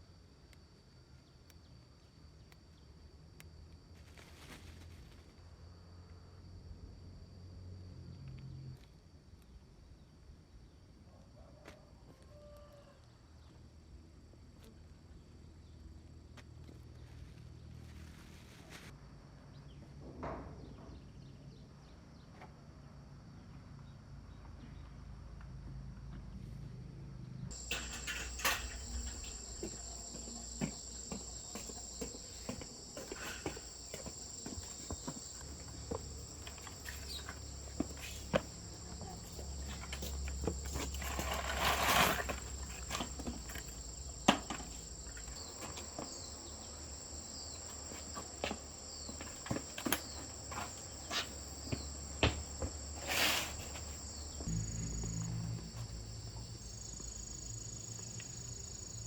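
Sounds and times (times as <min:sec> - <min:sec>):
insect chorus trilling: 0:27.5 - 0:59.0.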